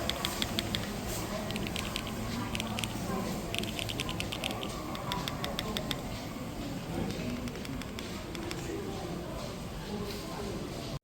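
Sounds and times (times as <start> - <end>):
keyboard typing: 0.0 - 8.7.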